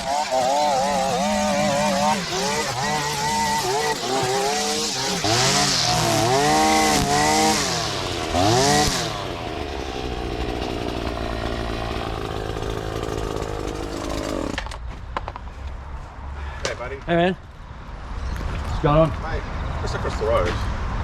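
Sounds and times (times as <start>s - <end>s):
line trimmer engine revving: 0.0s - 14.8s.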